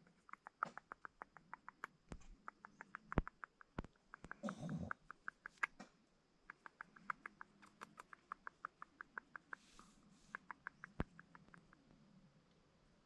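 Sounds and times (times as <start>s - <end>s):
small animal chirping: 0.0s - 12.2s
sharp click: 0.3s - 5.9s.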